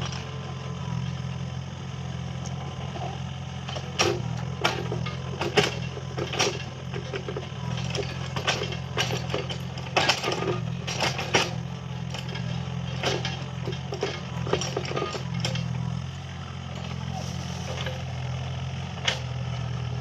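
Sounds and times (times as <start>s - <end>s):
excavator diesel engine running: 0.0s - 20.0s
machine clanks and knocks: 3.7s - 15.8s, 16.7s - 18.1s.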